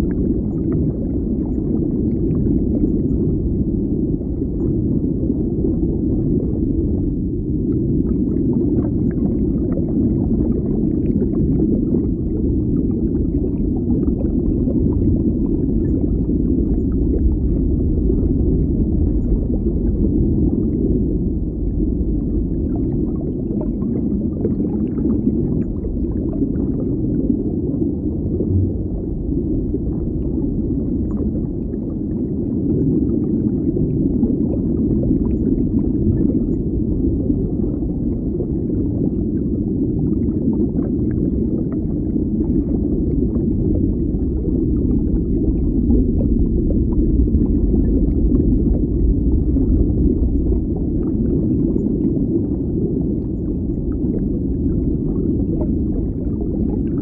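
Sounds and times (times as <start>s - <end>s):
underwater rumble: 0.0s - 57.0s.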